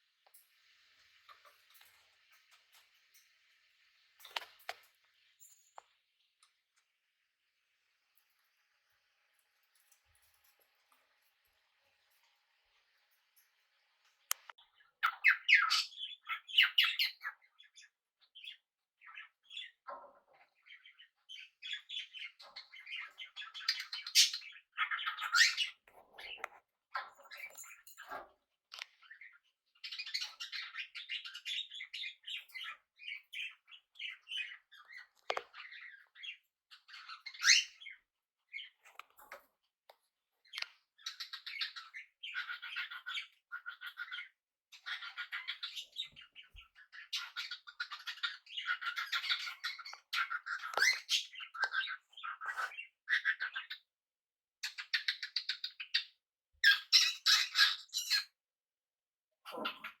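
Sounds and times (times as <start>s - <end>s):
parrots chirping and chattering: 0.0s - 7.0s, 7.8s - 53.9s, 54.6s - 58.4s, 59.5s - 60.0s.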